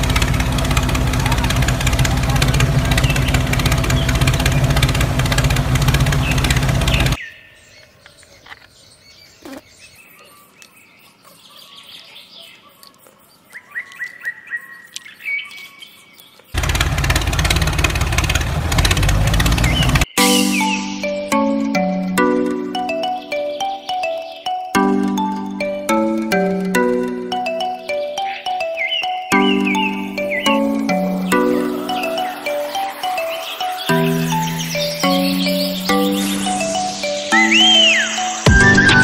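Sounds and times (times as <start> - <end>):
tractor engine running: 0.0 - 7.2, 16.6 - 20.2, 29.4 - 37.3
birds chirping: 0.0 - 39.0.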